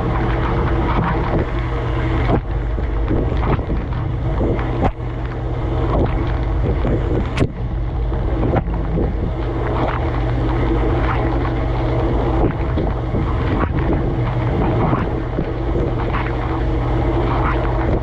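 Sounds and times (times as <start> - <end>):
dishwasher pump motor hum: 0.0 - 18.0.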